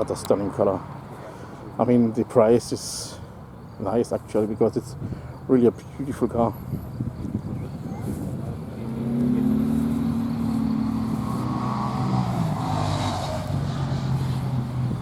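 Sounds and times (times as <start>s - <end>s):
car engine running: 7.4s - 15.0s.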